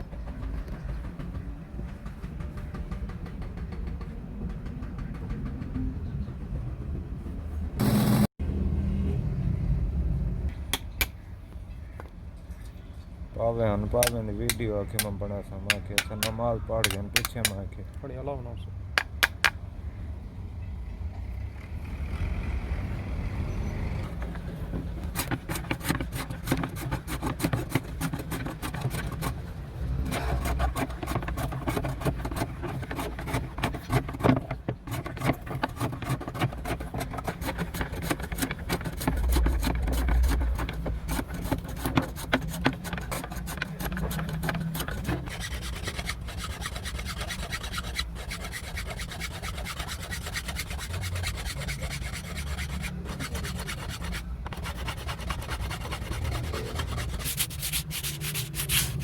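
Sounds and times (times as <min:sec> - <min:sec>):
file rasping on metal: 0:15.7 - 0:17.6, 0:25.0 - 0:59.0.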